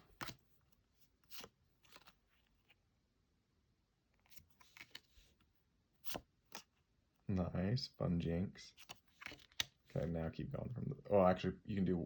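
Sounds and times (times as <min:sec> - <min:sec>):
cards rustling: 0:01.1 - 0:02.8, 0:04.2 - 0:05.4, 0:08.7 - 0:09.8.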